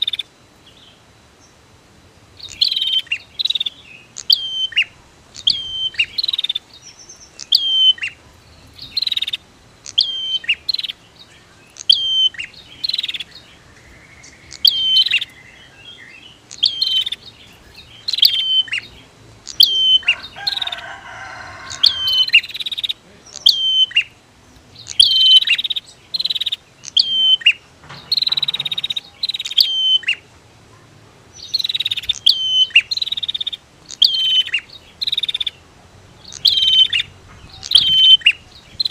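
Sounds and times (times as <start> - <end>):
bird high sharp chirps: 0.0 - 0.8, 2.4 - 30.3, 31.3 - 35.6, 36.2 - 38.9
bird rattling chatter: 24.8 - 29.6.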